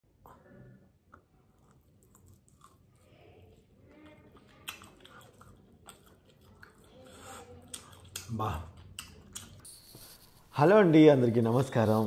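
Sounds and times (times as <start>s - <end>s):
person chewing crispy chicken: 1.1s - 9.6s.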